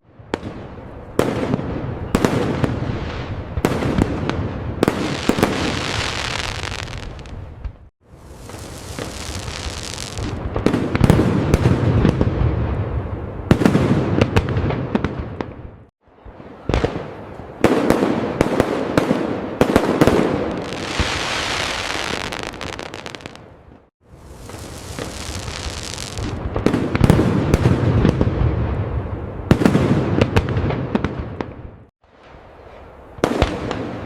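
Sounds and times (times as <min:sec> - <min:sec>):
fireworks bangs and booms: 0:00.1 - 0:34.0
fireworks crackling: 0:02.2 - 0:15.5, 0:17.6 - 0:23.5, 0:24.1 - 0:31.5.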